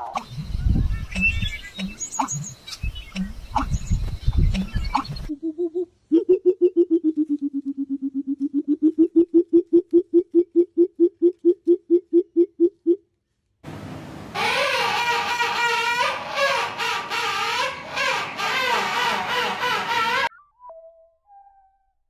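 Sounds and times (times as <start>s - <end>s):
bird hooting rapidly: 14.4s - 20.3s.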